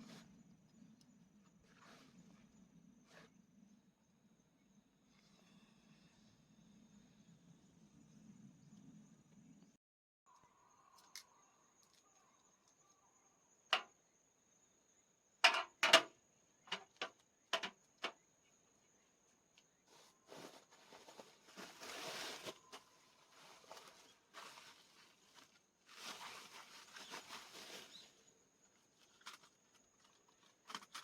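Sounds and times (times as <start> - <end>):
sharp clicks and knocks: 16.7 - 18.2
rustling: 19.9 - 28.3.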